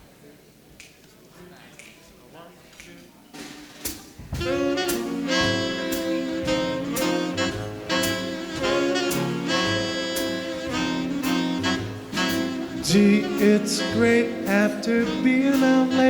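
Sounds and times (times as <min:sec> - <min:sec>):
big band swing music: 0:03.3 - 0:16.0.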